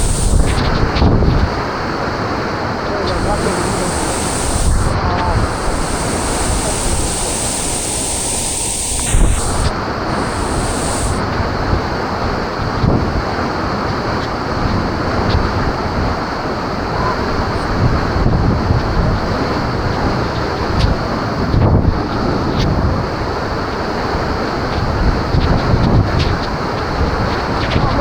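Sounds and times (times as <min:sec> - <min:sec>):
wind buffeting microphone: 0:00.0 - 0:01.5.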